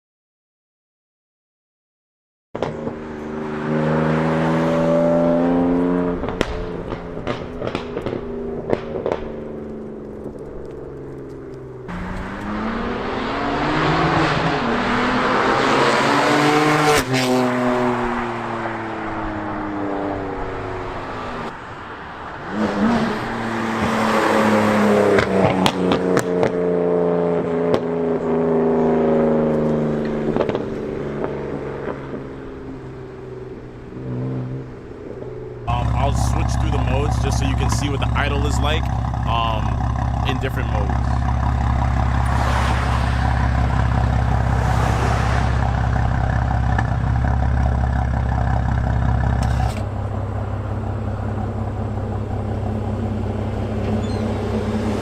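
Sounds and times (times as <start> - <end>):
loud car exhaust accelerating: 2.6 - 21.5, 22.5 - 55.0
exhaust crackles and pops: 6.2 - 12.6, 29.5 - 32.9, 35.1 - 44.8, 45.4 - 54.3.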